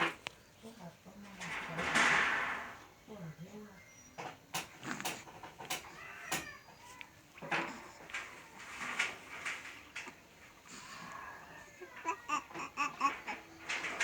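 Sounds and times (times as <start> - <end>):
baby cooing: 4.8 - 8.7, 10.7 - 14.0.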